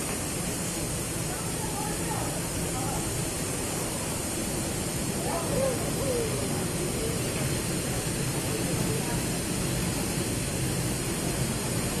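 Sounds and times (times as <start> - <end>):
industrial drying equipment running: 0.0 - 12.0
faint voice: 5.2 - 7.2.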